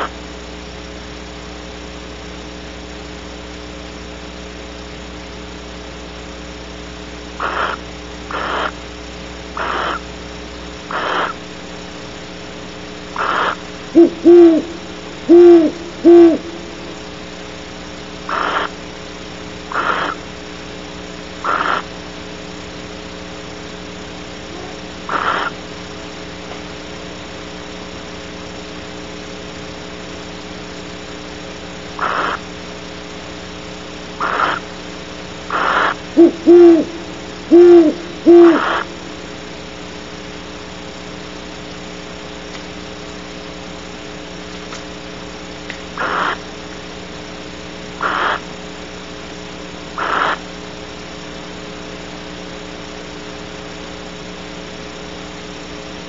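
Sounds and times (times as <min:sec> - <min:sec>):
steady electrical hum: 0:00.0 - 0:56.0
owl hooting: 0:07.4 - 0:08.8, 0:09.5 - 0:10.2, 0:10.8 - 0:11.5, 0:13.0 - 0:17.3, 0:18.2 - 0:18.8, 0:19.6 - 0:20.3, 0:21.4 - 0:22.0, 0:24.5 - 0:25.8, 0:31.9 - 0:32.6, 0:34.1 - 0:34.8, 0:35.4 - 0:39.2, 0:45.9 - 0:46.6, 0:48.0 - 0:48.6, 0:49.9 - 0:50.5
short raspy calls: 0:07.4 - 0:08.9, 0:09.5 - 0:10.2, 0:10.8 - 0:11.5, 0:13.0 - 0:17.0, 0:18.2 - 0:18.8, 0:19.6 - 0:20.3, 0:21.4 - 0:22.0, 0:24.5 - 0:25.7, 0:32.0 - 0:32.6, 0:34.1 - 0:34.8, 0:35.4 - 0:39.1, 0:45.9 - 0:46.6, 0:48.0 - 0:48.6, 0:49.9 - 0:50.6.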